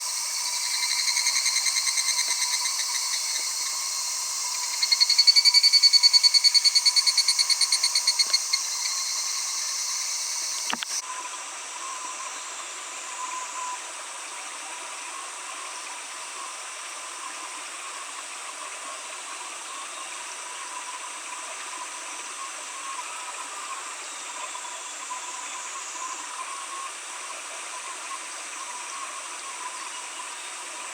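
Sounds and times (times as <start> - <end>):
cicada pulsed trill: 0.0 - 17.0
faint steady hiss: 0.0 - 30.9.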